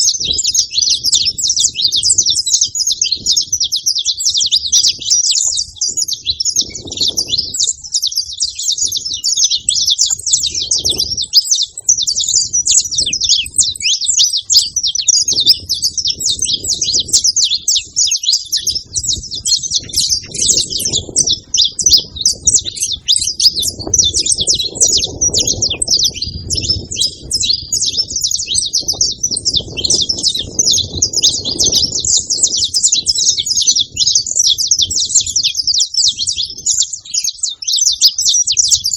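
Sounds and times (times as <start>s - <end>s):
finches chirping and trilling: 0.0s - 38.9s.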